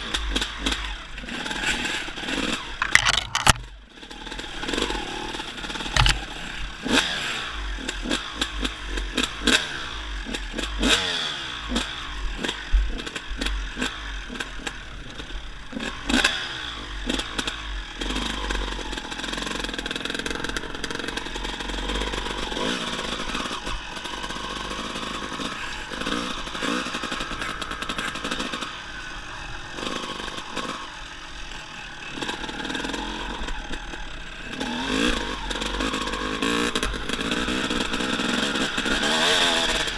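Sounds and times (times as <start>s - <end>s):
dirt bike engine revving: 0.0s - 39.9s
sharp knocks and rattles: 2.8s - 3.7s, 6.0s - 6.2s.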